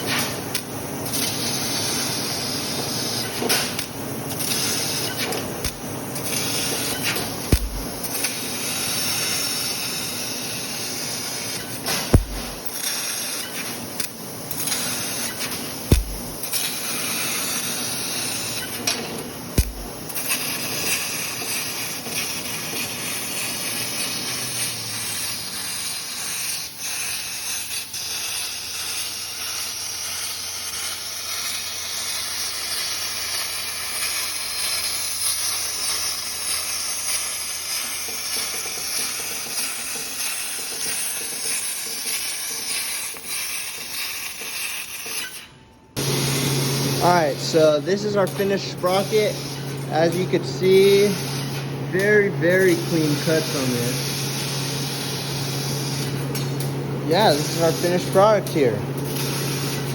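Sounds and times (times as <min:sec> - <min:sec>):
gas jet hissing: 0:00.5 - 0:45.3, 0:46.0 - 0:59.9
low thumps: 0:07.5 - 0:08.0, 0:12.2 - 0:12.6, 0:15.9 - 0:16.4.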